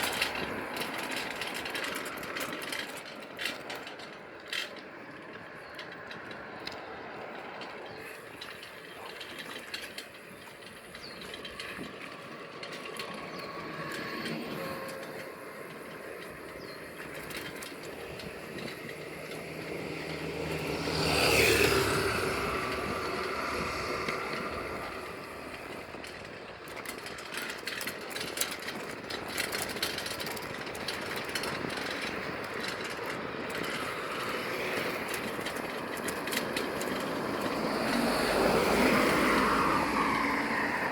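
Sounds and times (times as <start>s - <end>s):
bicycle road noise: 0.0s - 40.9s
vehicle passing: 6.2s - 28.5s, 32.7s - 40.9s.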